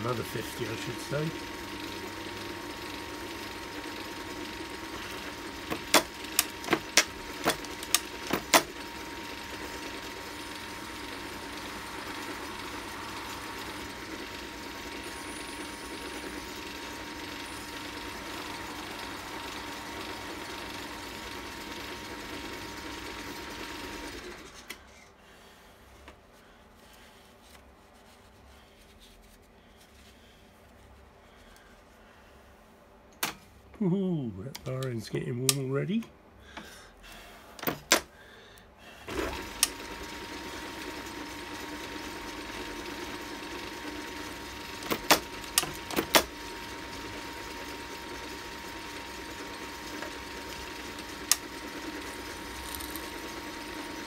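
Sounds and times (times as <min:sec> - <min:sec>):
lathe running with a hum: 0:00.0 - 0:25.1, 0:39.0 - 0:54.0.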